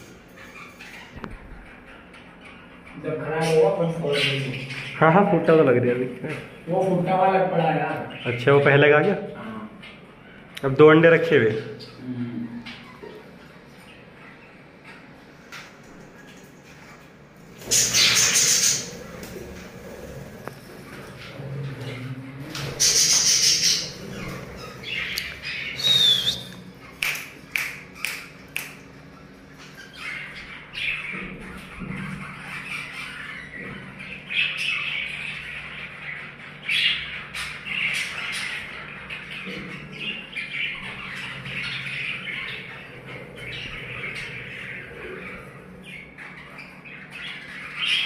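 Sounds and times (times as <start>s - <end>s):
budgerigars chattering and chirping: 0.0s - 12.0s, 17.5s - 48.0s
harsh squawk: 22.7s - 27.0s.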